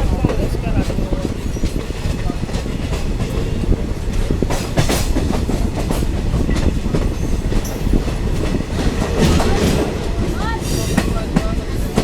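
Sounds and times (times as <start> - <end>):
clickety-clack over rail joints: 0.0 - 12.0
train wheels rumbling: 0.0 - 12.0.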